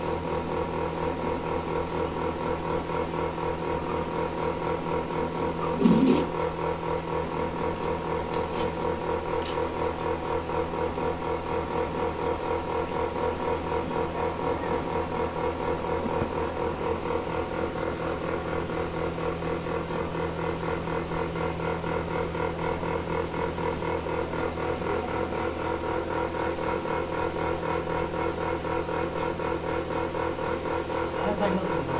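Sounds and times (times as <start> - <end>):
milking machine pulsing hum: 0.0 - 31.9.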